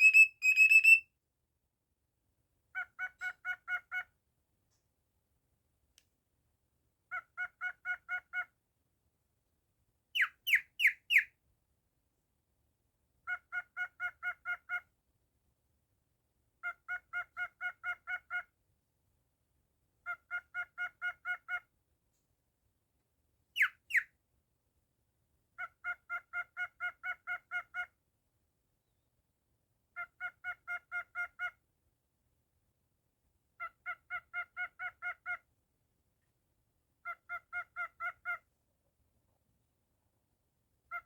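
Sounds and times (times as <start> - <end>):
sharp downward-sweeping bird calls: 0.0 - 1.0.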